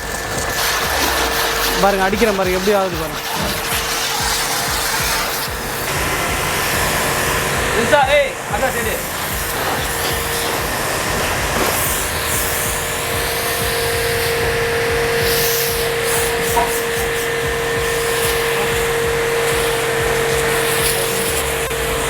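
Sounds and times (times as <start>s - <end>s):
pressure washer motor humming: 0.0s - 22.0s
water spray hissing: 0.0s - 22.0s.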